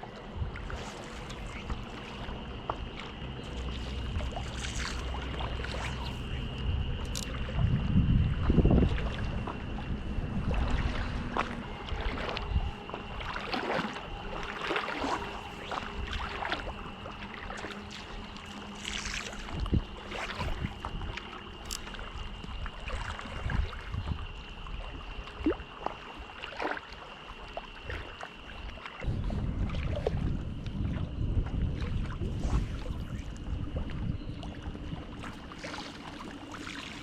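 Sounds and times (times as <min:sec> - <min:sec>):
steady high drone: 0:00.0 - 0:25.1
wind rumbling on microphone: 0:00.0 - 0:26.3, 0:27.8 - 0:37.0
lakeshore water: 0:00.0 - 0:37.0
small water splashes: 0:00.0 - 0:37.0
wind: 0:00.0 - 0:37.0.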